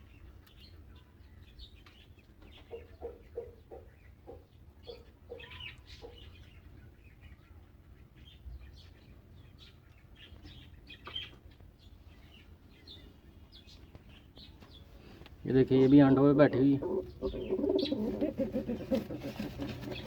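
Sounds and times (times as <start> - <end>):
small birds chirping: 0.0 - 20.0
hen clucking: 2.5 - 6.3, 15.7 - 20.0.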